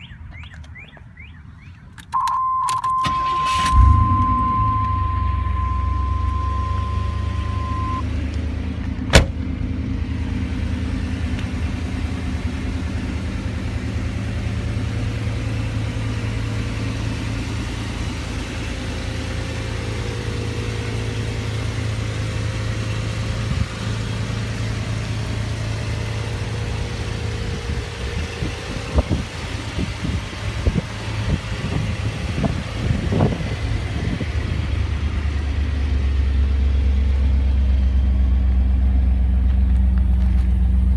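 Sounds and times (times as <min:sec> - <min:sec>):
car engine idling: 0:03.0 - 0:40.9.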